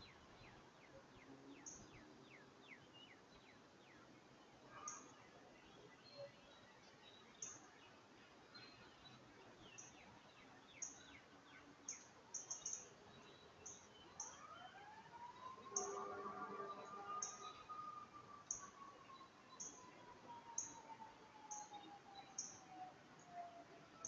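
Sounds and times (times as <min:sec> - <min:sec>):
faint steady tone: 0:00.0 - 0:24.0
birds chirping: 0:15.2 - 0:22.6.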